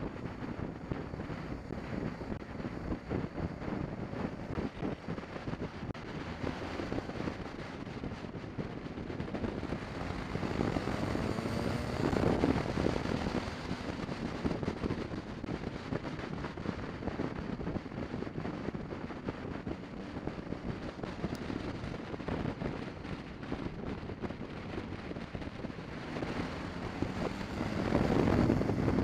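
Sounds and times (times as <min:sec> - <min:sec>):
motorcycle engine running: 0:00.0 - 0:29.0
wind rushing over microphone: 0:00.0 - 0:29.0.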